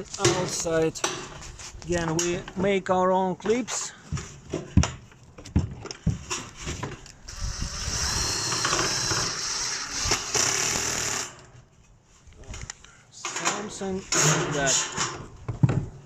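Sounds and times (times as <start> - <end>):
handheld power tool running: 7.3 - 11.5.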